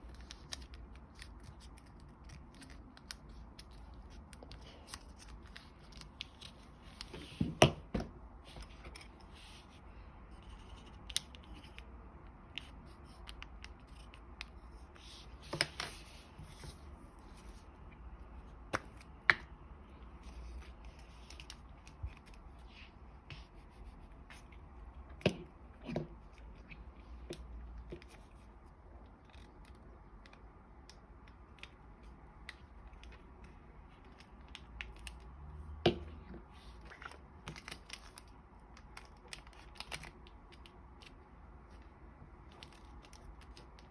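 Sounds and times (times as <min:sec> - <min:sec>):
paper folding crackles: 0:00.0 - 0:07.4, 0:36.5 - 0:43.9.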